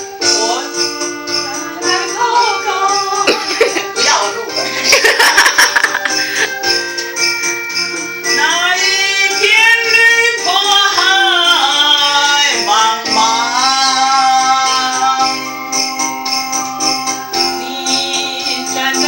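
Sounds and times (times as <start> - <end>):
instrumental accompaniment: 0.0 - 19.0
jingling percussion: 0.0 - 19.0.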